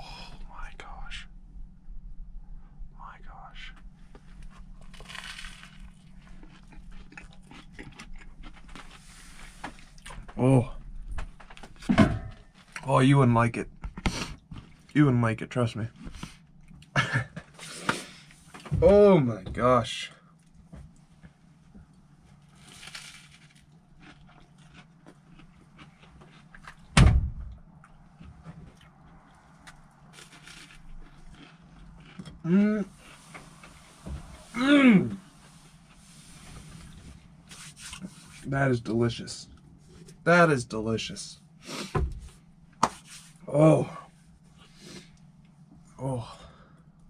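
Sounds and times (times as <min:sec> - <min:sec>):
low steady hum: 0:00.0 - 0:47.0
toast crunching: 0:04.3 - 0:10.3, 0:21.9 - 0:26.9, 0:28.7 - 0:33.4
biting and chewing toast: 0:04.4 - 0:10.3, 0:22.3 - 0:26.9, 0:27.8 - 0:33.3
loud thump: 0:27.0 - 0:27.5.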